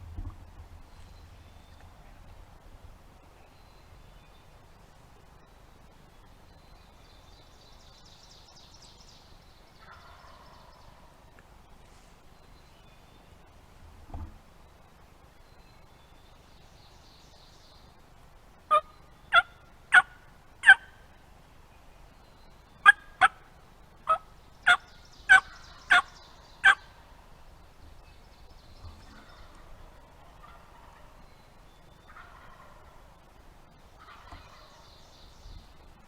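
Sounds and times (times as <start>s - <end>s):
turkey calling: 9.8s - 10.8s, 18.7s - 21.0s, 22.8s - 23.4s, 24.0s - 27.0s, 29.0s - 31.2s, 32.1s - 33.1s, 34.0s - 34.8s.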